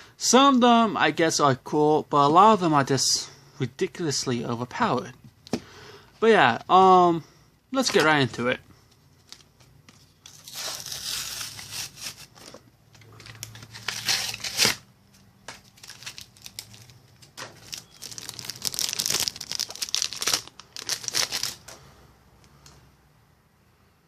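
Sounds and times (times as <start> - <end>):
foil wrapper crinkling and tearing: 10.3 - 12.6, 13.2 - 14.8, 15.5 - 21.7.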